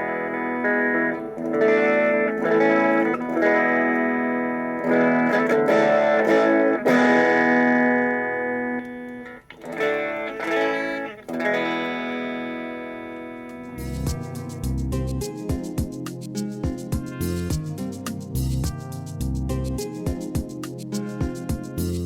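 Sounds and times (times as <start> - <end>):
electric guitar strumming chords: 0.0 - 22.0
music with low regular thumps: 13.8 - 22.0.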